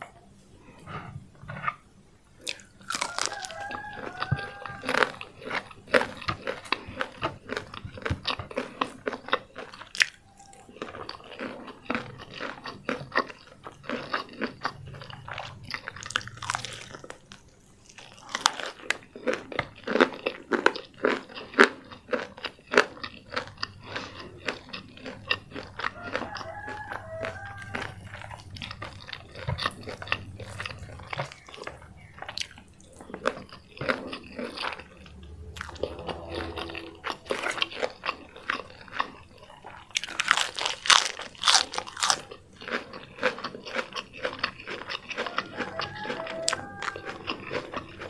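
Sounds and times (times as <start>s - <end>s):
crunchy chewing: 0.0s - 48.0s.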